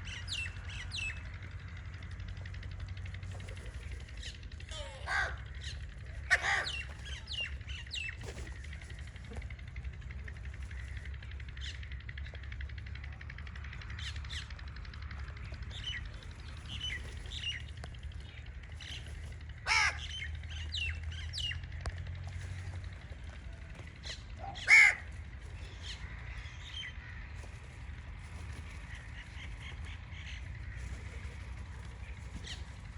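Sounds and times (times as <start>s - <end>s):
birds chirping: 0.0s - 32.9s
low steady hum: 0.0s - 32.9s
crows cawing: 4.7s - 7.4s, 19.4s - 21.6s, 24.0s - 28.0s.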